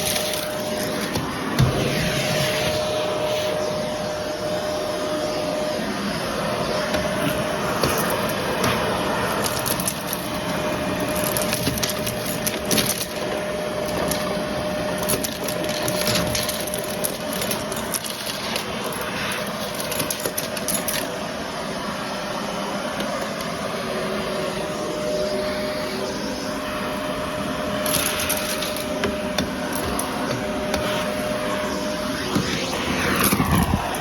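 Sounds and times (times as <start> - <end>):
vacuum cleaner whine: 0.0 - 34.0
debris crackling in vacuum: 32.1 - 34.0.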